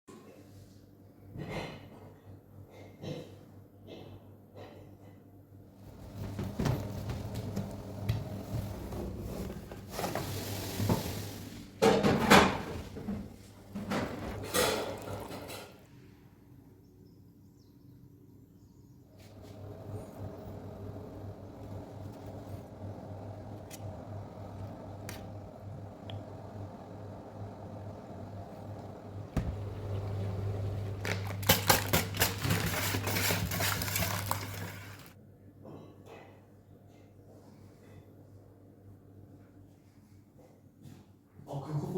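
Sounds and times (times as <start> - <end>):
kitchen clatter: 9.4 - 15.8, 29.4 - 35.1
low hum: 19.1 - 32.7.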